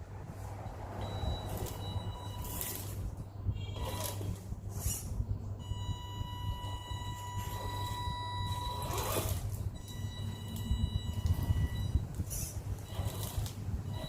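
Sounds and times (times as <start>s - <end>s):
electric motor whining: 6.4s - 14.0s.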